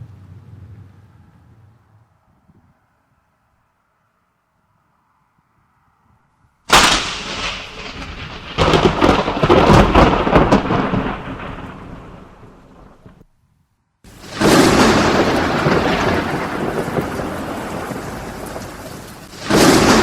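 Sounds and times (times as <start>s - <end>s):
thunder crack and rumble: 6.7s - 13.3s, 14.1s - 20.0s.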